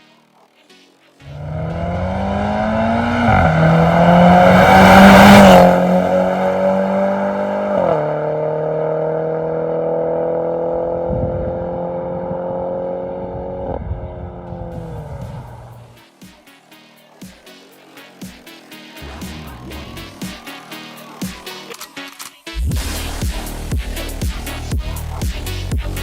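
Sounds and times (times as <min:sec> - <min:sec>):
car engine revving and idling: 0:01.2 - 0:15.9.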